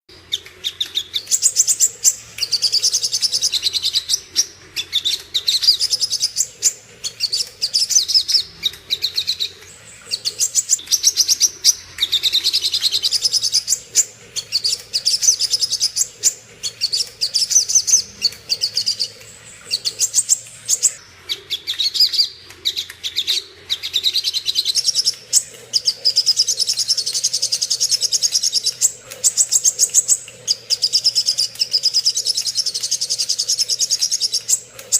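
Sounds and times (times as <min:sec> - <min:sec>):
bird chattering call: 0:00.8 - 0:22.4.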